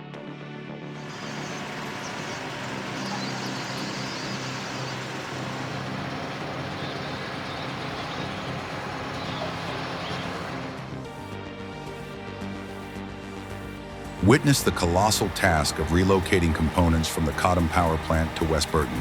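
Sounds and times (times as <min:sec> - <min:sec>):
heavy vehicle engine running: 0:01.0 - 0:10.9, 0:14.2 - 0:19.0
road noise: 0:01.0 - 0:11.0, 0:14.2 - 0:19.0.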